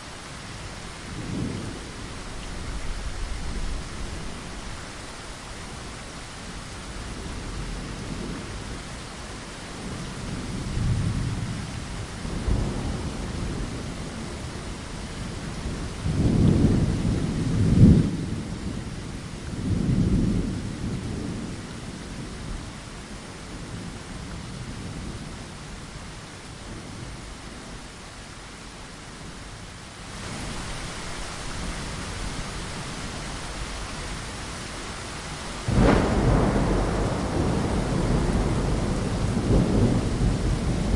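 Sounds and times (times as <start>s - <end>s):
rain on a window: 0.0s - 40.9s
thunder rumbling: 9.8s - 21.6s, 30.2s - 40.9s.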